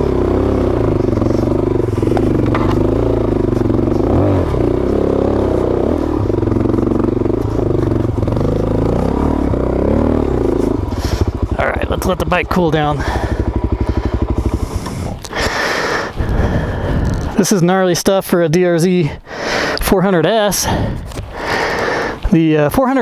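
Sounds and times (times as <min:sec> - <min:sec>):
motorcycle engine labouring: 0:00.0 - 0:23.0
rocks clattering and scraping: 0:20.9 - 0:22.4.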